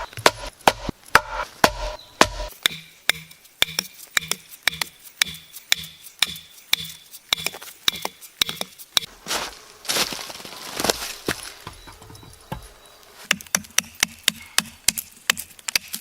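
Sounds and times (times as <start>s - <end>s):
hammer knocking on wood: 0.0s - 5.4s.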